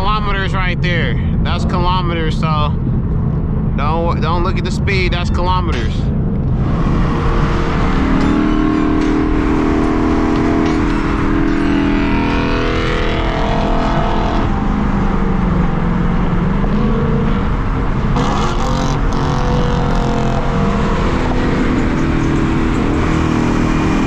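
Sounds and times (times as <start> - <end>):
car engine accelerating: 0.0 - 24.0
road and wind noise: 0.0 - 24.0.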